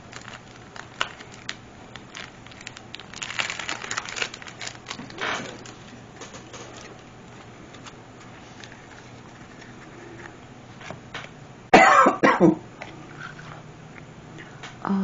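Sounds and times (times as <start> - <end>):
woman coughing: 11.8 - 12.6.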